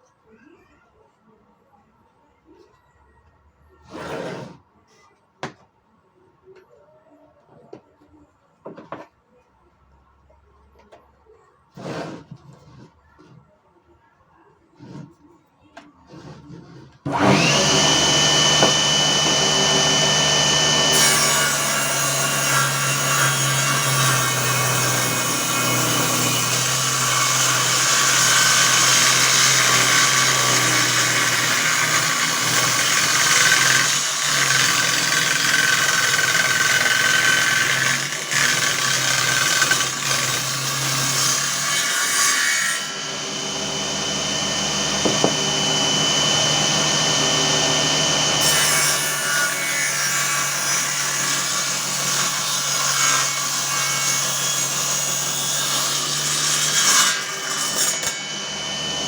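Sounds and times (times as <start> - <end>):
circular saw cutting wood: 16.1 - 59.0
circular saw whining: 17.1 - 52.4, 56.8 - 59.0.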